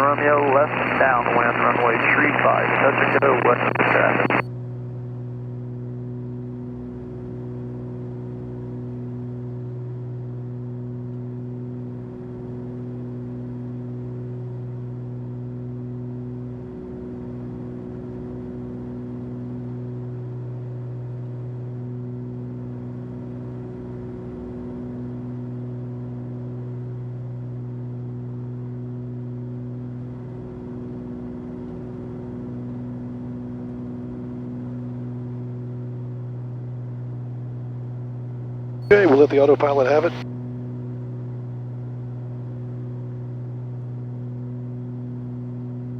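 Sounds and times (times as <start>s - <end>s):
propeller plane engines droning: 0.0s - 4.4s, 38.9s - 41.4s.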